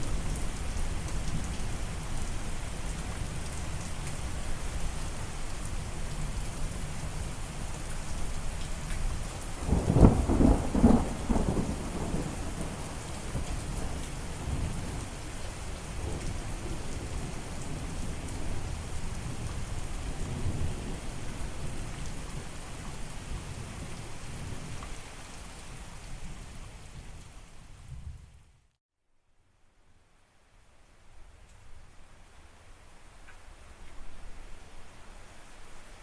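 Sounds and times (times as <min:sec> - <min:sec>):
steady rain: 0:00.0 - 0:28.8, 0:29.4 - 0:36.0
thunder rumbling: 0:09.6 - 0:24.7.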